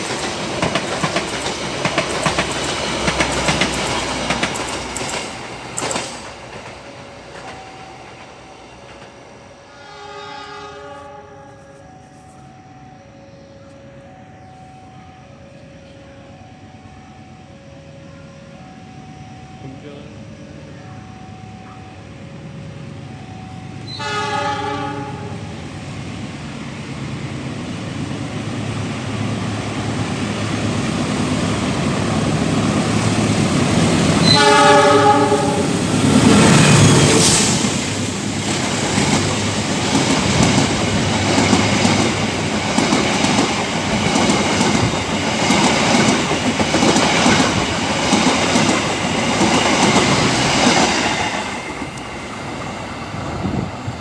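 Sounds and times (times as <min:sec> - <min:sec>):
train wheels clickety-clack: 0:00.0 - 0:09.2, 0:32.0 - 0:53.9
locomotive rushing past: 0:00.0 - 0:10.8, 0:22.1 - 0:54.0
train horn blasts: 0:09.5 - 0:13.2, 0:23.5 - 0:25.8, 0:34.1 - 0:37.4.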